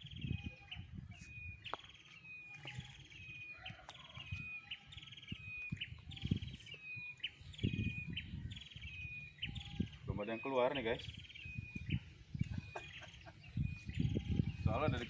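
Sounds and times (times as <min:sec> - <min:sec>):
bird singing trill and whistle: 0:00.0 - 0:15.0.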